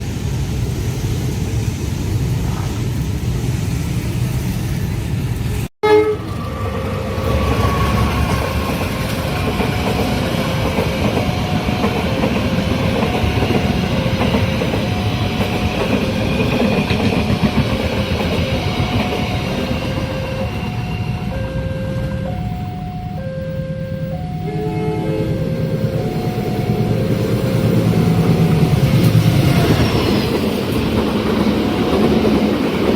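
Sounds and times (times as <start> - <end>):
train rumbling past: 0.0 - 32.9
level crossing two-tone alarm: 9.4 - 29.2.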